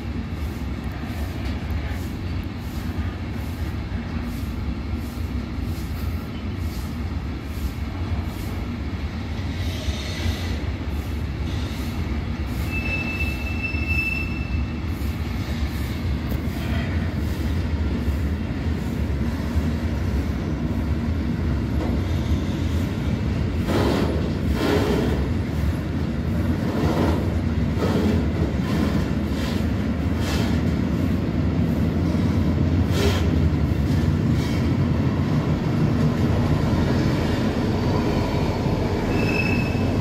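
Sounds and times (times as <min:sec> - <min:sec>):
train rumbling: 0:00.0 - 0:40.0
high-pitched wheel squeal: 0:12.6 - 0:14.8, 0:39.0 - 0:40.0.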